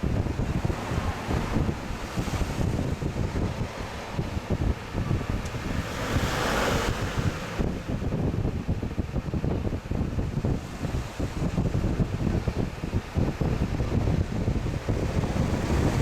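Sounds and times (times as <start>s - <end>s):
air conditioner blower wind noise: 0.0s - 16.0s
bright rush of air: 14.7s - 16.0s.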